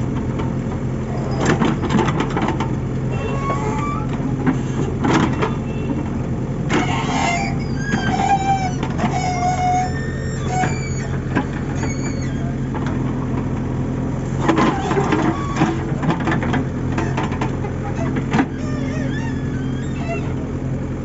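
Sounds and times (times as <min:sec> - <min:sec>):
diesel engine running: 0:00.0 - 0:21.0
metal knocks and clanks: 0:14.4 - 0:19.1.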